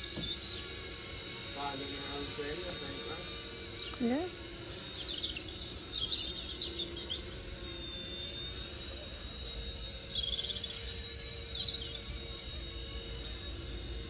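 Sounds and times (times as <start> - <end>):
birds chirping: 0.0 - 0.8, 1.6 - 7.6, 9.8 - 12.5
rc helicopter motor whine: 0.0 - 14.0.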